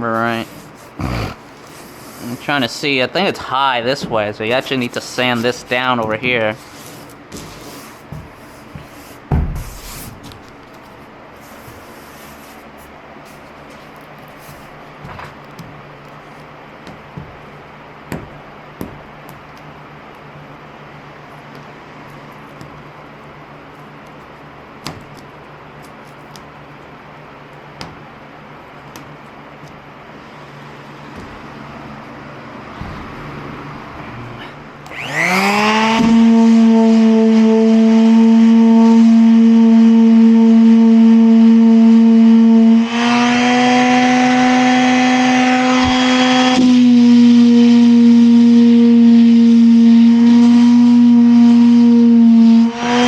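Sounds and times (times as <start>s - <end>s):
handling clicks and rustling: 10.1s - 11.8s, 12.6s - 17.7s
electric sander running: 34.0s - 53.0s.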